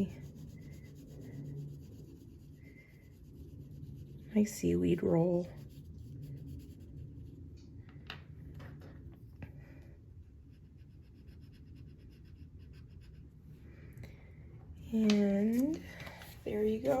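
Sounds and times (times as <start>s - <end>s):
marker strokes on paper: 0.0s - 7.4s, 16.2s - 17.0s.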